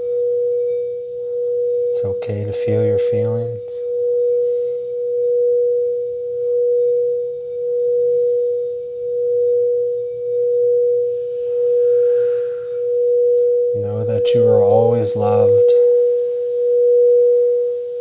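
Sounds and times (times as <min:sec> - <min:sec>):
singing bowl tone: 0:00.0 - 0:18.0.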